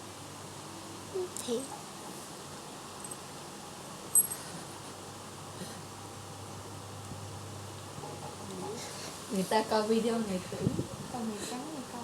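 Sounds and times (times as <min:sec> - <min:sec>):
background hiss: 0:00.0 - 0:08.0
constant low hum: 0:00.0 - 0:12.0.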